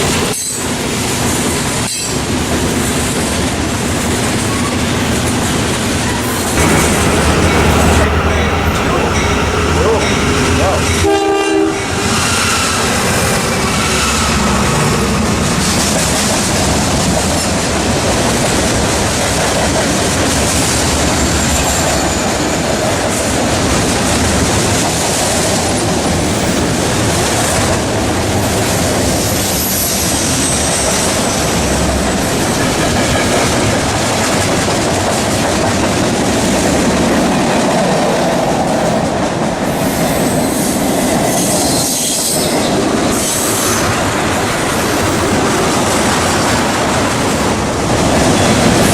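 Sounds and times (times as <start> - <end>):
train wheels rolling on rails: 0.0 - 48.9
train horn: 6.6 - 15.1.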